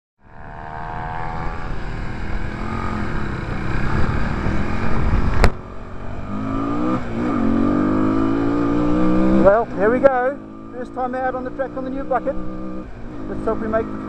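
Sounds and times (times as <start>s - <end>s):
motorcycle engine accelerating: 0.2s - 14.0s.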